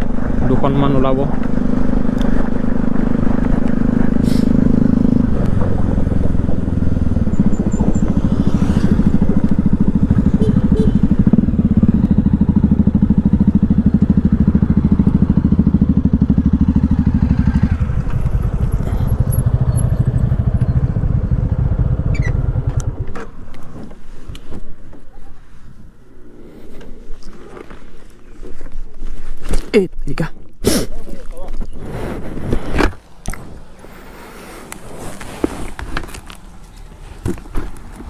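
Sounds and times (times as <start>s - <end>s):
motorcycle engine running: 0.0s - 23.6s.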